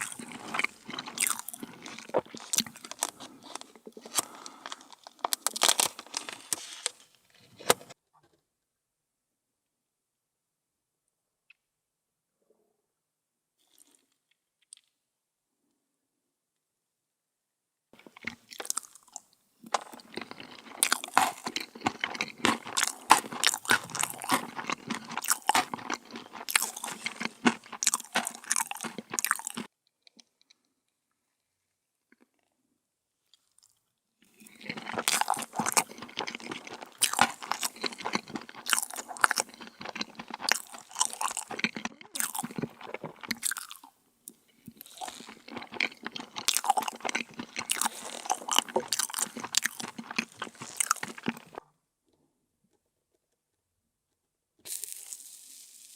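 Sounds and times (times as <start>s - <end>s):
crunchy chewing: 0.0s - 7.0s, 18.0s - 30.6s, 33.3s - 51.6s.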